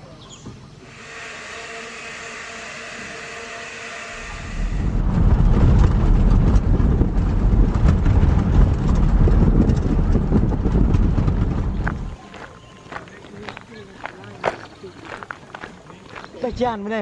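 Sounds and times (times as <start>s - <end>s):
loud low rumbling: 4.0s - 12.2s.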